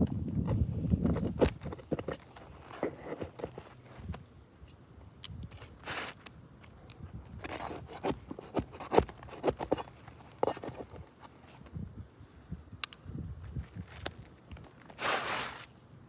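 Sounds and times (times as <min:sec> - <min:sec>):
tools scraping roof shingles: 0:07.4 - 0:11.5, 0:14.8 - 0:15.7.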